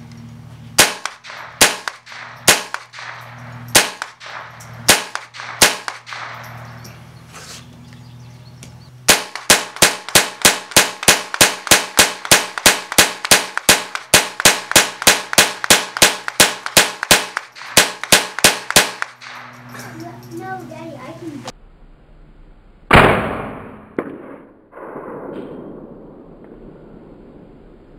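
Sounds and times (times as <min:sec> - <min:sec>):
rifle shots: 0:00.8 - 0:06.8, 0:09.0 - 0:19.7, 0:22.9 - 0:26.4.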